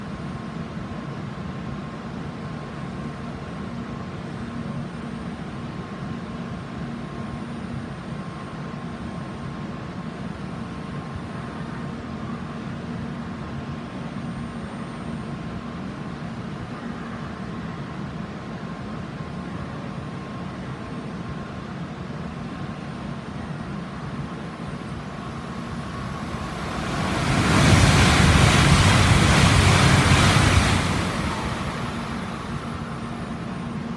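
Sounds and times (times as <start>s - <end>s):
train rushing past: 23.6s - 33.9s.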